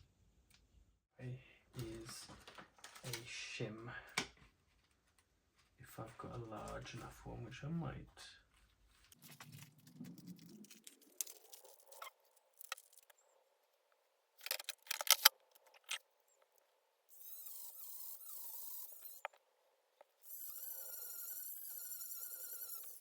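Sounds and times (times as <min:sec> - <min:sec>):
small items rummaged on workbench: 0:08.5 - 0:13.2, 0:14.4 - 0:16.0.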